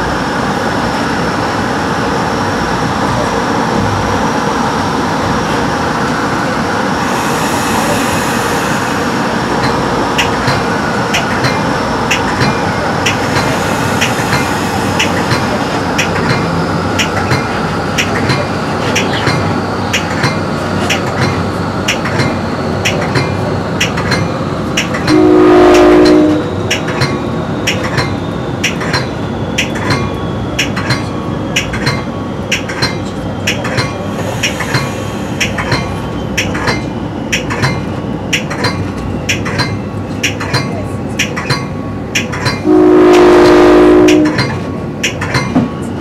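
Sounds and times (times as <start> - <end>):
train wheels clicking over joints: 9.5 - 25.2, 26.0 - 42.6, 44.1 - 45.9
train horn blast: 25.1 - 26.6, 42.6 - 44.5.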